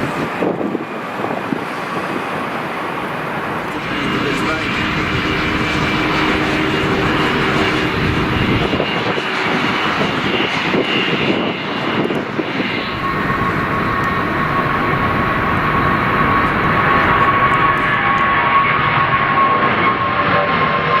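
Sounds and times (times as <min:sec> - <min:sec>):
high whine: 0:00.0 - 0:21.0
jet engines roaring: 0:00.0 - 0:21.0.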